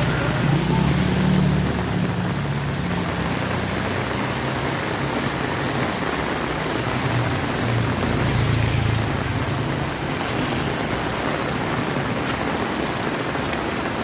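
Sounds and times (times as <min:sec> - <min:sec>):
heavy rain: 0:00.0 - 0:14.0.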